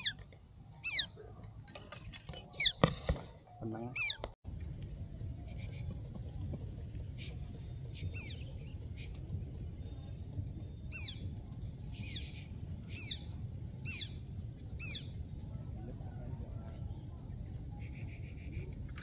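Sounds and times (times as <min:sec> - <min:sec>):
bird sharp high calls: 0:00.0 - 0:00.2, 0:00.8 - 0:01.2, 0:03.9 - 0:04.3.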